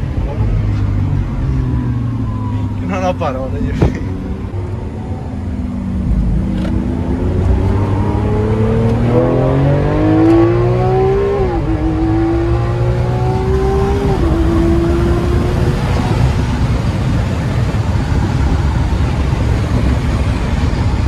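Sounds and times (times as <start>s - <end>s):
sports car engine accelerating: 3.5s - 20.9s.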